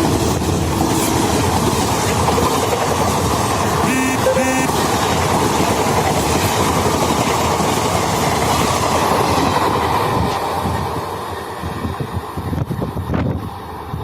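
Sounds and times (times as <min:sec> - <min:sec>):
train rumbling past: 0:00.0 - 0:03.7.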